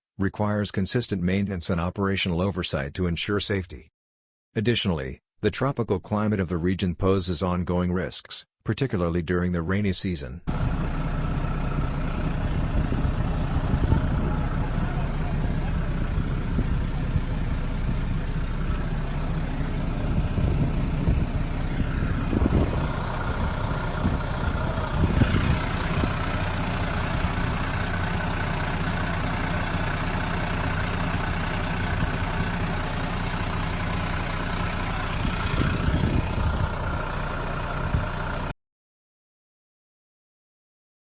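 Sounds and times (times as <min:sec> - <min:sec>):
large engine droning: 0:10.5 - 0:38.5.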